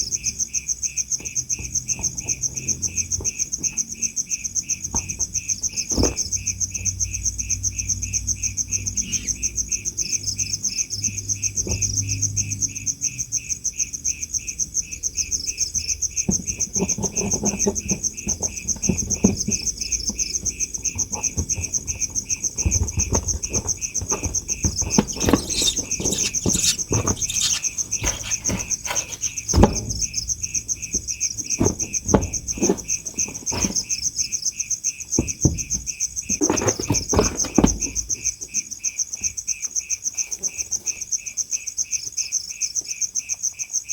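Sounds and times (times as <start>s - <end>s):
crickets chirping: 0.0s - 43.9s
rustling: 16.8s - 30.1s.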